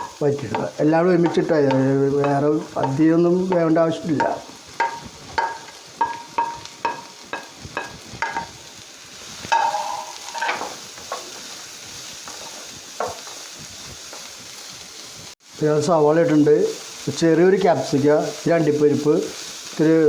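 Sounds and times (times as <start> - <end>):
utensil striking a pan: 0.0 - 8.6, 9.5 - 11.5, 12.2 - 13.4
onions sizzling in a pan: 0.0 - 20.0.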